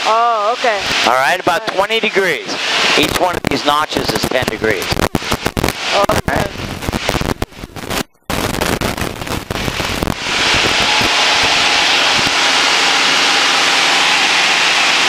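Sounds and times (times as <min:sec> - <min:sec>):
steady loud hiss: 0:00.0 - 0:15.0
crackling headset static: 0:02.8 - 0:12.4
faint airplane engine drone: 0:09.8 - 0:15.0.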